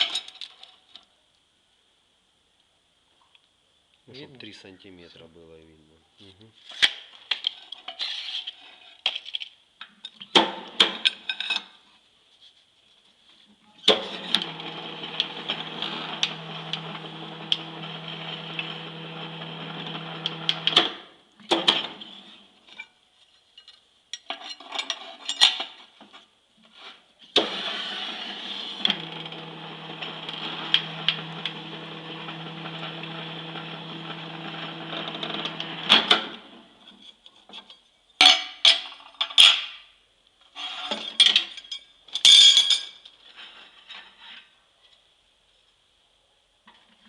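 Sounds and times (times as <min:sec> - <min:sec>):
electric motor humming: 0:14.3 - 0:20.8, 0:27.4 - 0:36.0.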